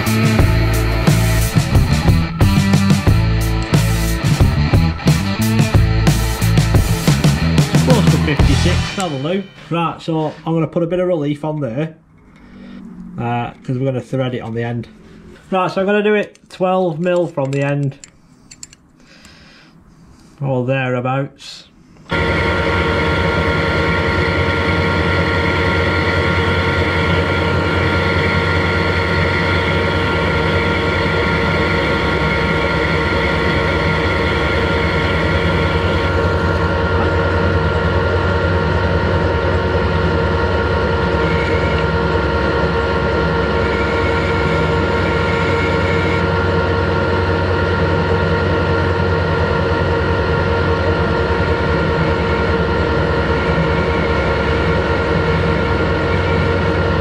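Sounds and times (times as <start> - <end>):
lathe gearing hum and whine: 0.0 - 10.6, 22.0 - 57.0.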